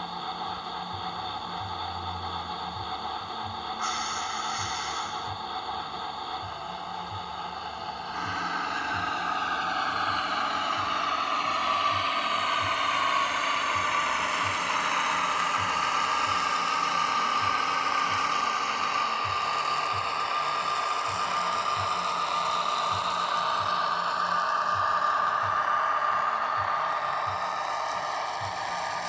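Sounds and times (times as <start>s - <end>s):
diesel engine sound through tiny speaker: 0.0s - 29.0s
model motor and gears whirring: 0.0s - 29.0s.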